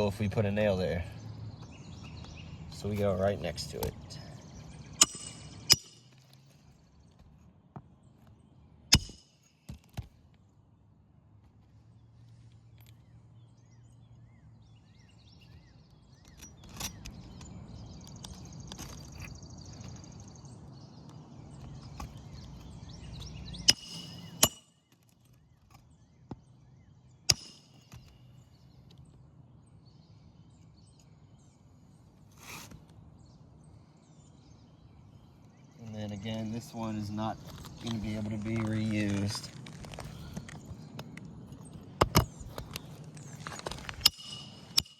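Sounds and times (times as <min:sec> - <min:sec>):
nails hammered into roof shingles: 0:08.9 - 0:10.1
rustling of shingles: 0:15.4 - 0:20.3, 0:36.1 - 0:44.9.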